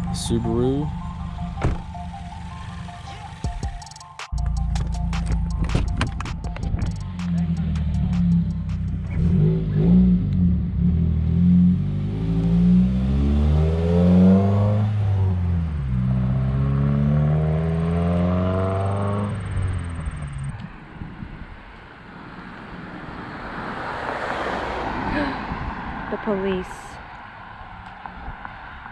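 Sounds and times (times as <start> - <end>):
car engine accelerating hard: 4.4 - 20.7.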